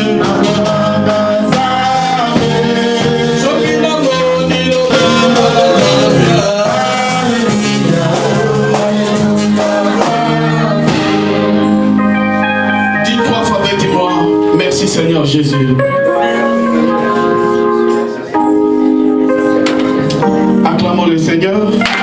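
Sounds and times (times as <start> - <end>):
people singing worship song: 0.0 - 12.0
steady percussive beat: 0.0 - 14.6
instrumental accompaniment: 0.0 - 22.0.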